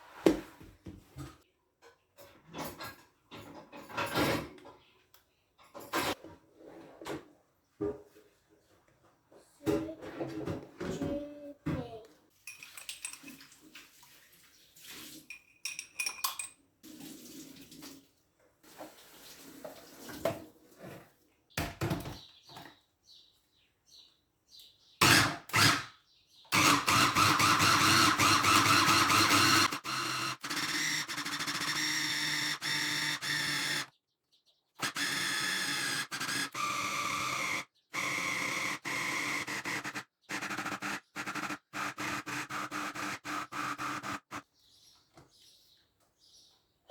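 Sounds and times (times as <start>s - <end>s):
kitchen utensils clinking: 12.4s - 13.7s, 15.2s - 16.7s
kitchen appliance motor running: 25.0s - 25.9s, 26.6s - 33.9s, 34.8s - 44.4s.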